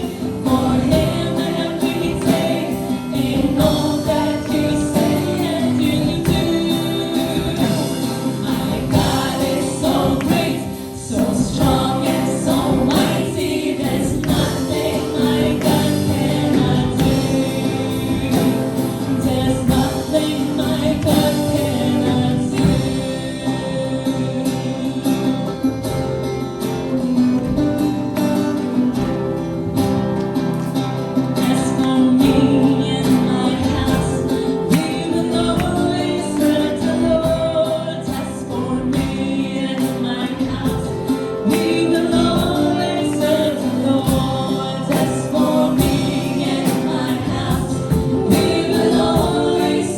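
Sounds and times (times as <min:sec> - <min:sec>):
group singing gospel song: 0:00.0 - 0:26.1, 0:28.6 - 0:49.9
guitar: 0:00.0 - 0:49.9.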